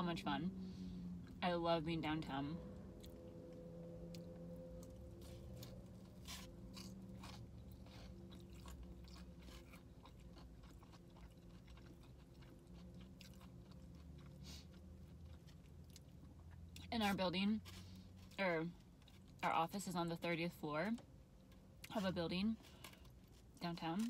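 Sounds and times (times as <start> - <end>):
faint steady hum: 0.0 - 24.0
chewing crunchy fried chicken: 3.0 - 19.5, 20.9 - 24.0.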